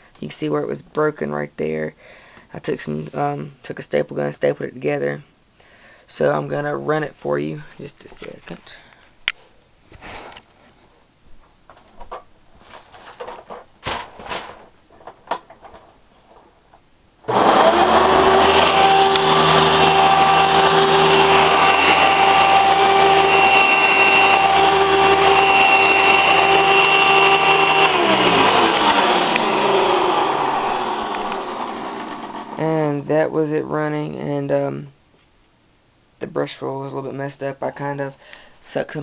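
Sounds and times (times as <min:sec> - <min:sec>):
vacuum cleaner motor whine: 0:17.3 - 0:32.6.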